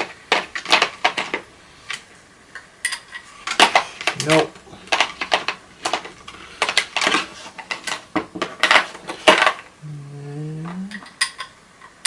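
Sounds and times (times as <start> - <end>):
person humming: 9.8 - 11.2.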